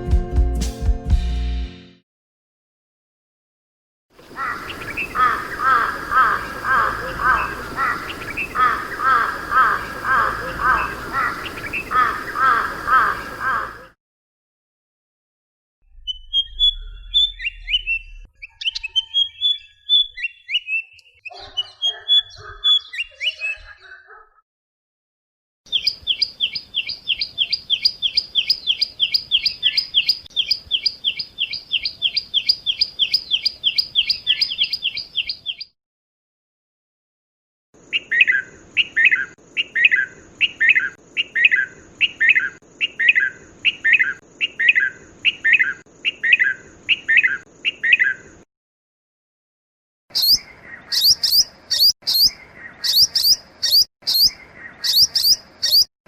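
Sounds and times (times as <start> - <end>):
bird chirping rapidly: 4.2 - 13.9, 16.0 - 23.8, 25.7 - 35.7, 50.1 - 55.9
bird sharp calls: 4.2 - 14.0, 50.1 - 55.9
birds twittering: 4.2 - 14.0, 16.1 - 24.2, 25.7 - 35.7, 50.1 - 55.9.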